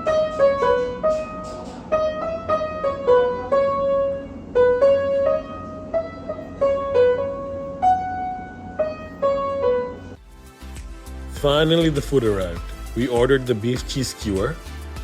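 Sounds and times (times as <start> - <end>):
steady room hum: 0.0 - 10.3
piano melody: 0.0 - 15.0.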